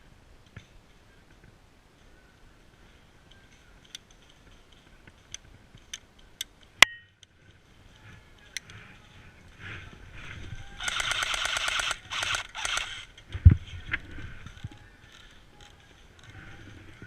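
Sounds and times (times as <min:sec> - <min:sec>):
airsoft rifle firing: 0:10.8 - 0:13.1.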